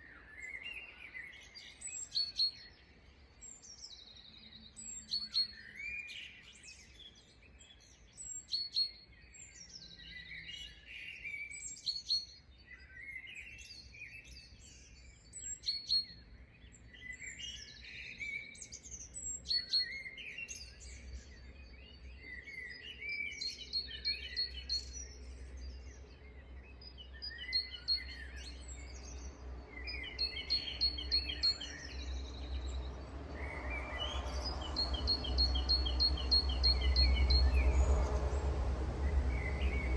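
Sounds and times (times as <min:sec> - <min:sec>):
birds chirping and singing: 0:00.0 - 0:39.9
low rumble: 0:31.9 - 0:39.9.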